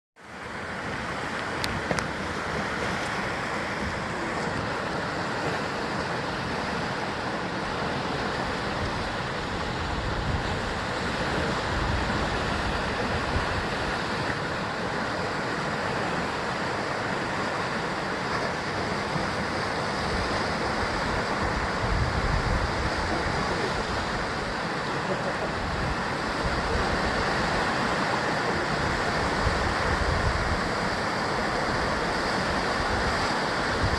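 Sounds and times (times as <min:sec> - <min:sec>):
ocean waves breaking on rocks: 0:00.2 - 0:33.9.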